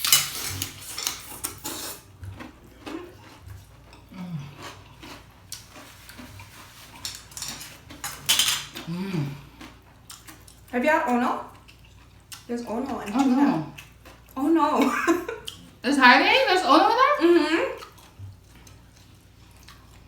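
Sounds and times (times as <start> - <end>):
utensils scraping a bowl: 0.0 - 2.1, 3.0 - 8.8.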